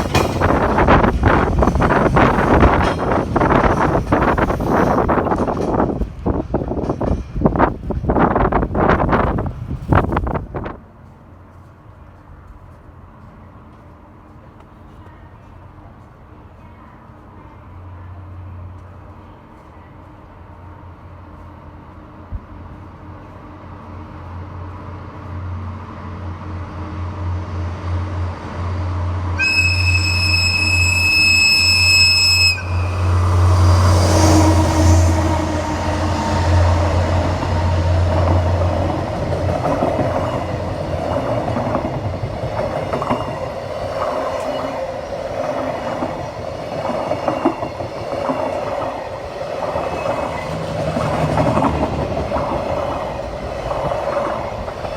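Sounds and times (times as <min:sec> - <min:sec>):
wagons clattering over rail joints: 0:00.0 - 0:10.3
locomotive engine drone: 0:23.0 - 0:54.9
train horn blast: 0:29.4 - 0:37.0.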